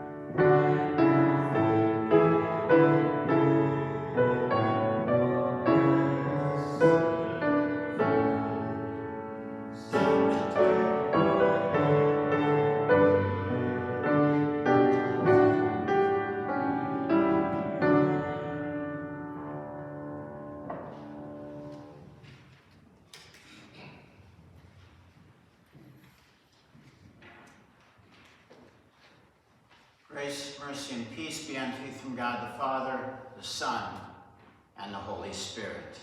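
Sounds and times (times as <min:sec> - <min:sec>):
piano playing a slow hymn: 0:00.0 - 0:22.3.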